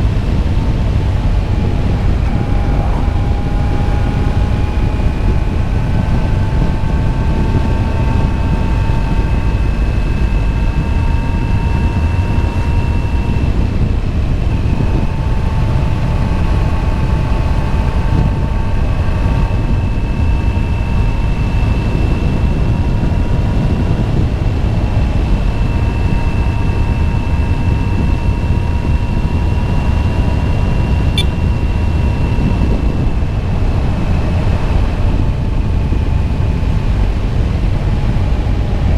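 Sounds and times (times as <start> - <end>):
motorcycle engine whine: 0.0 - 38.9
wind rumble: 0.0 - 38.9.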